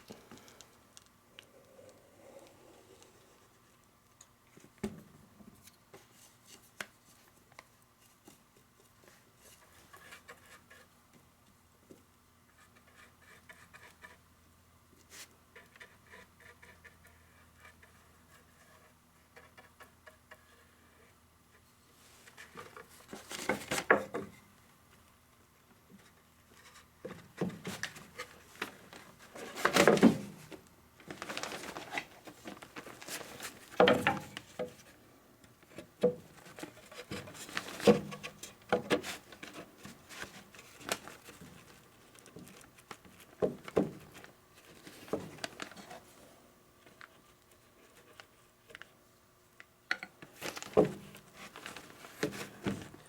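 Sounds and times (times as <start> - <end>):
rustling and scraping: 15.0 - 24.5, 25.9 - 35.0, 35.6 - 46.3, 50.3 - 53.0.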